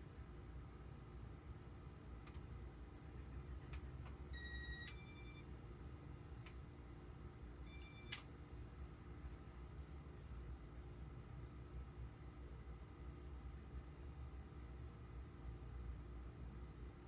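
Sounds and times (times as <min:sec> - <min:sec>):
low steady hum: 0:00.0 - 0:17.0
short electronic beeps: 0:04.4 - 0:05.5, 0:07.7 - 0:08.2.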